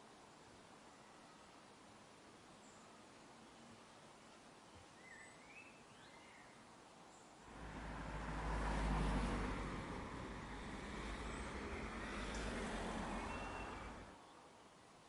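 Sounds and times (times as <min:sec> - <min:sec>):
motor vehicle passing: 0:07.5 - 0:14.2
bird chirps: 0:13.1 - 0:14.0.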